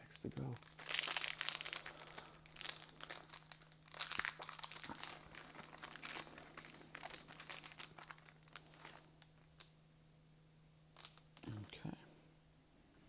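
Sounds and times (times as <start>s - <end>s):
faint steady hum: 0.0s - 13.0s
card pack wrapper crinkling: 0.1s - 9.7s, 11.0s - 11.6s.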